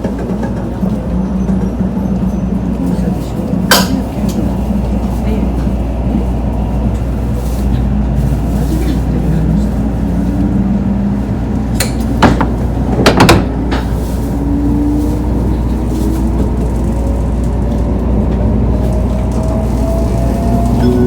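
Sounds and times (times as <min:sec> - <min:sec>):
train cabin rumble: 0:00.0 - 0:21.0
sharp knocks: 0:11.8 - 0:13.9.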